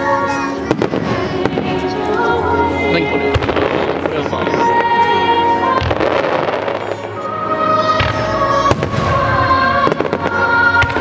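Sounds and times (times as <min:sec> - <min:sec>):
music playing: 0:00.0 - 0:11.0
firework bangs: 0:00.6 - 0:02.0, 0:03.3 - 0:05.0, 0:05.7 - 0:11.0.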